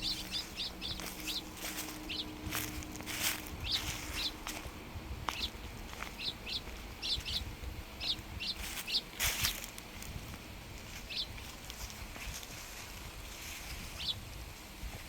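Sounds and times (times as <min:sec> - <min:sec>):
small bird chirping: 0:00.0 - 0:04.7, 0:05.3 - 0:10.2, 0:10.8 - 0:12.2, 0:13.5 - 0:14.2
faint low rumble: 0:00.0 - 0:14.4
rustle: 0:00.0 - 0:15.0.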